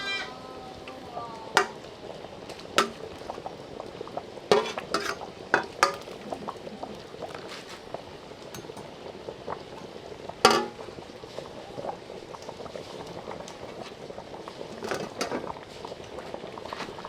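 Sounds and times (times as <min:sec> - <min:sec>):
gravy bubbling and popping: 0:01.5 - 0:17.0
utensil clacking on pot: 0:01.6 - 0:02.0, 0:02.8 - 0:03.6, 0:04.5 - 0:07.5, 0:08.4 - 0:11.0, 0:14.6 - 0:15.6.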